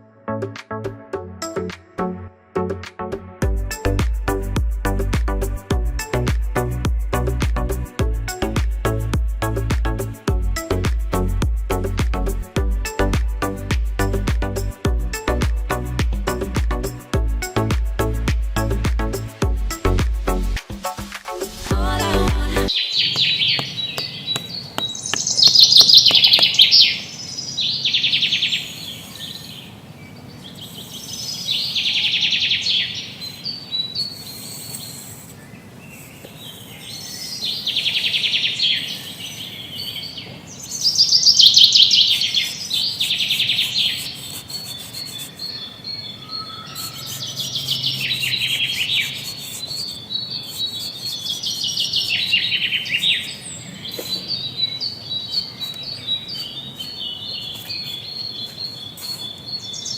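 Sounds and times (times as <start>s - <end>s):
small birds trilling: 22.7s - 59.9s.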